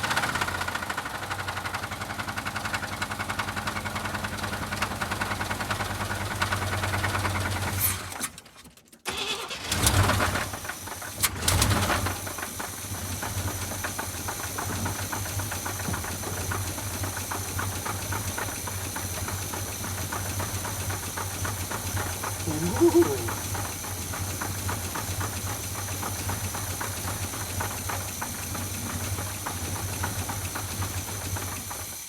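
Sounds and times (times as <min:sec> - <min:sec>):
rapid engine knock: 0:10.0 - 0:32.0.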